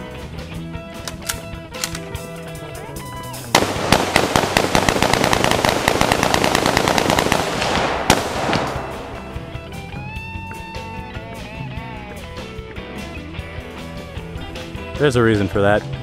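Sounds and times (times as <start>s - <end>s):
background music: 0.0s - 16.0s
rapid sharp cracks: 3.5s - 9.6s.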